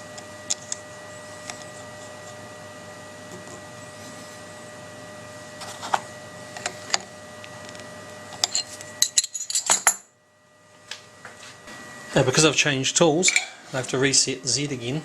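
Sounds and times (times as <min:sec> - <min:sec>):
faint electrical whine: 0:00.0 - 0:15.0
small metal tools clinking: 0:08.4 - 0:09.9.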